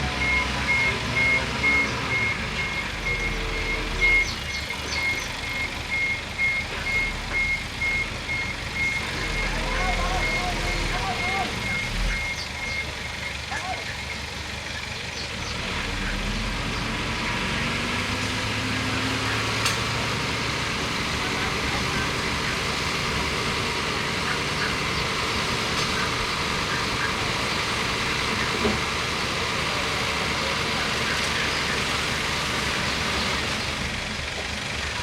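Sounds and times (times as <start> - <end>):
bulldozer diesel engine running: 0.0 - 35.0.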